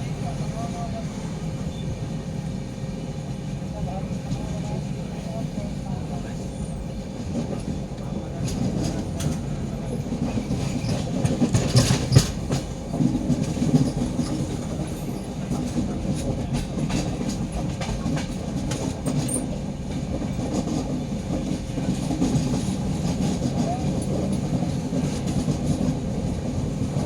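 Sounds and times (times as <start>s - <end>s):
train rumbling: 0.0s - 27.0s
wheels clacking over rail joints: 10.1s - 15.1s.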